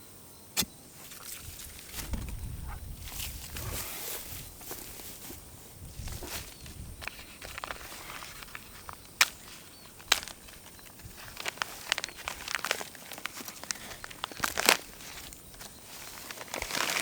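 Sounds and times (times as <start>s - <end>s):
faint outdoor background: 0.0s - 17.0s
crackles and ticks: 6.6s - 17.0s.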